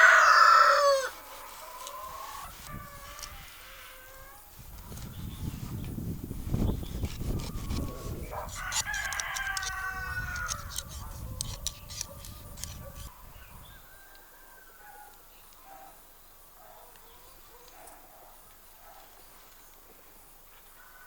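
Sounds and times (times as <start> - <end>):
rooster crowing: 0.0 - 3.3, 7.9 - 11.6, 13.8 - 14.8, 20.8 - 21.0
sharp clicks: 7.7 - 13.1.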